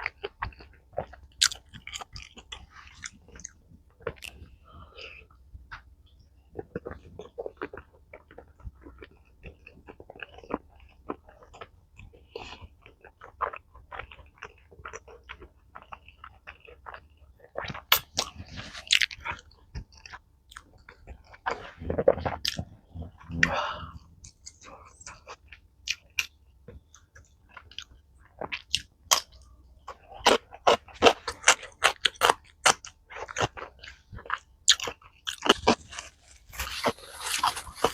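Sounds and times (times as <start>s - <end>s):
person biting and chewing food: 0.1s - 4.5s, 12.9s - 26.3s, 27.7s - 37.9s
mouth clicks: 21.8s - 25.2s.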